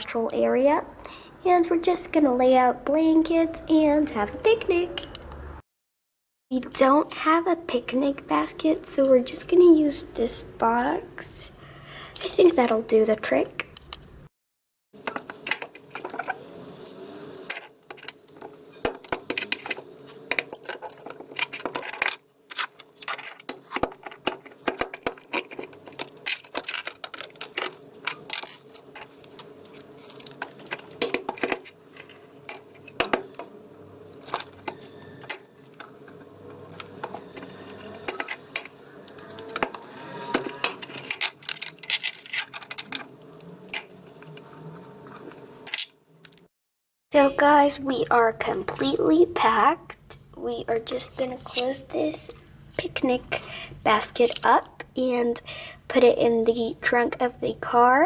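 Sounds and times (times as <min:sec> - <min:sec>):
plastic toy pieces clattering: 0:20.4 - 0:29.2, 0:40.6 - 0:43.9.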